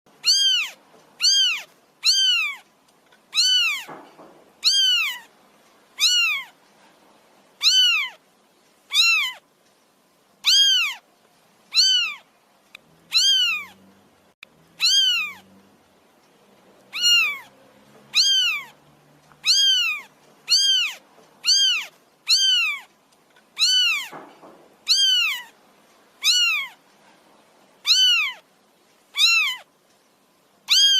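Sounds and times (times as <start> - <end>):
kitten meowing: 0.2 - 2.6, 3.3 - 4.0, 4.6 - 5.3, 6.0 - 6.6, 7.6 - 8.2, 8.9 - 9.4, 10.4 - 11.0, 11.7 - 12.2, 13.1 - 13.8, 14.8 - 15.4, 16.9 - 17.5, 18.1 - 18.8, 19.4 - 22.9, 23.6 - 24.2, 24.8 - 25.5, 26.2 - 26.8, 27.8 - 28.4, 29.2 - 29.7, 30.7 - 30.9.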